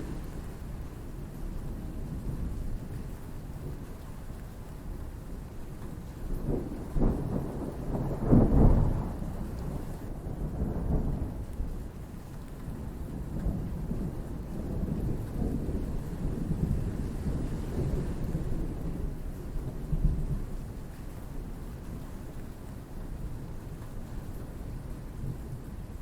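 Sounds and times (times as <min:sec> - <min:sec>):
steady rain: 0:00.0 - 0:26.0
thunder rumbling: 0:06.4 - 0:11.6.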